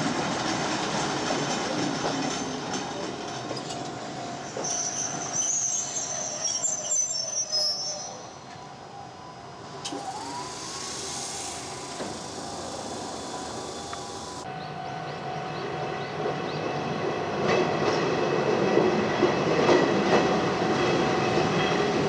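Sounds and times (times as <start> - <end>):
electric train pulling in: 0.0 - 22.0
brakes squealing: 4.5 - 8.3
hissing air burst: 9.9 - 14.4.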